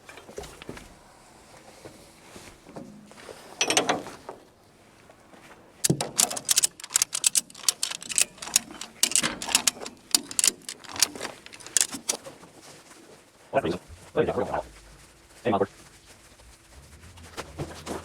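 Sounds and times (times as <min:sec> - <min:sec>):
ratchet strap clattering: 0:03.6 - 0:04.1, 0:05.8 - 0:12.3
ratchet strap clicking: 0:05.8 - 0:12.2.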